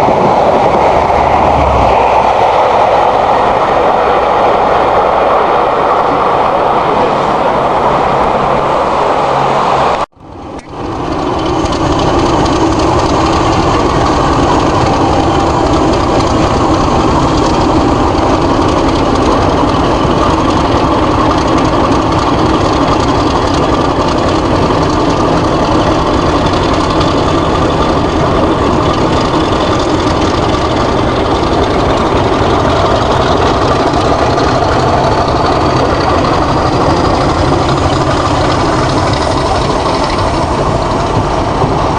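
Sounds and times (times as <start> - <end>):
diesel locomotive engine running: 0.0 - 41.9
faint whine rising in pitch: 0.0 - 41.9.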